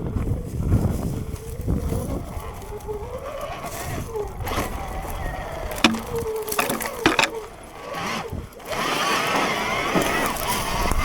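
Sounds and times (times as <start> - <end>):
tyre and wind noise: 0.0 - 11.0
sharp knocks: 5.8 - 7.5.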